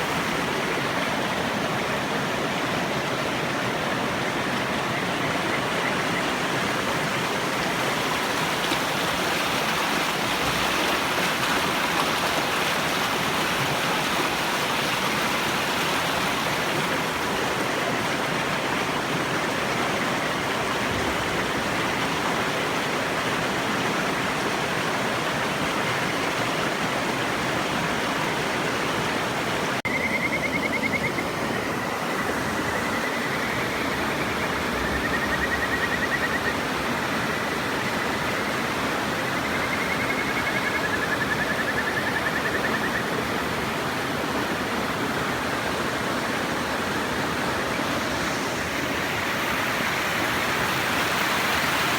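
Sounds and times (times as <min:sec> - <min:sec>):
river water rushing: 0:00.0 - 0:51.9
frog trilling: 0:29.9 - 0:31.4.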